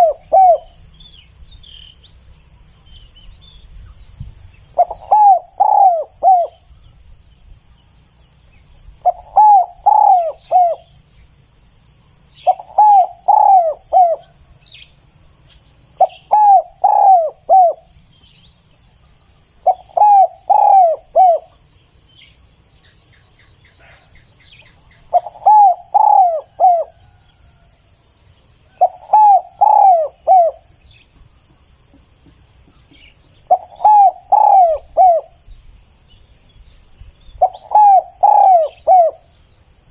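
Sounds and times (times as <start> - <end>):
dove cooing: 0.0 - 0.8, 4.8 - 6.6, 9.0 - 11.0, 12.4 - 14.4, 16.0 - 18.0, 19.6 - 21.6, 25.0 - 27.4, 28.7 - 30.7, 32.9 - 35.4, 37.4 - 39.3
insects trilling: 0.0 - 39.9.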